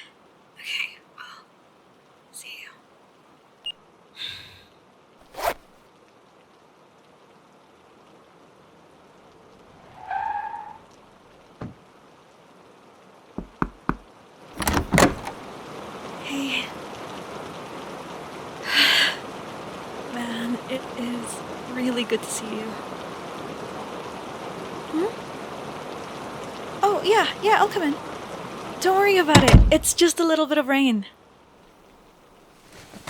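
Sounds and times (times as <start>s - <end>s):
rain falling: 5.9s - 30.7s
knocks and clunks: 13.4s - 14.0s, 14.6s - 15.4s, 29.3s - 30.0s.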